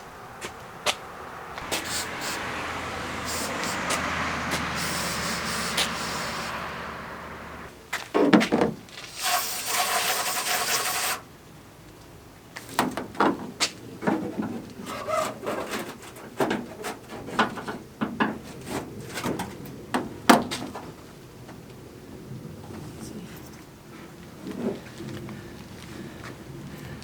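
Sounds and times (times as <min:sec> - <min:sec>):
aerosol spray hissing: 0:01.6 - 0:06.9.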